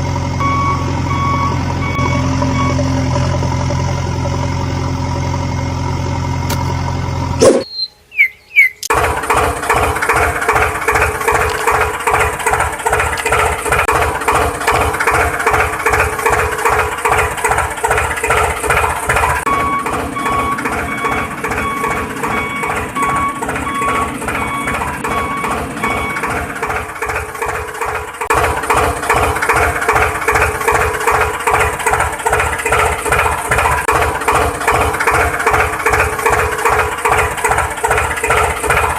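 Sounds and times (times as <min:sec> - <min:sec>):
engine chugging: 0:00.0 - 0:38.9
evenly spaced beeps: 0:07.4 - 0:08.9, 0:19.5 - 0:26.4
engine starting squeal: 0:15.0 - 0:26.8.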